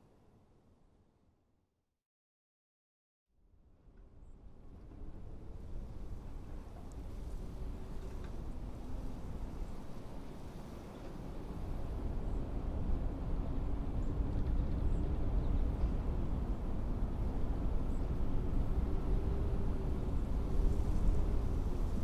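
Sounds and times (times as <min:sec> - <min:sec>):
blizzard wind howling: 0:05.4 - 0:22.0.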